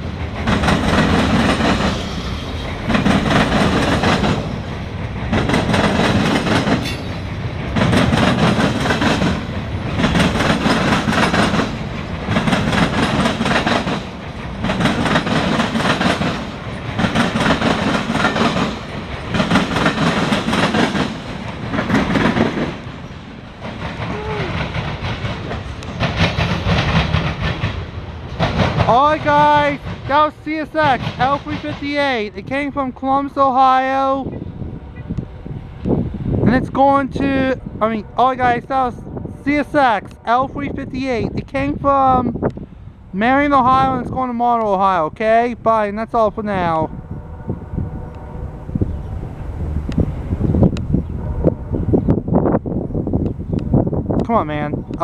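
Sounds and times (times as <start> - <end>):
train wheels clicking over rail joints: 0.0 - 32.7
loud freight train rumble: 0.0 - 55.0.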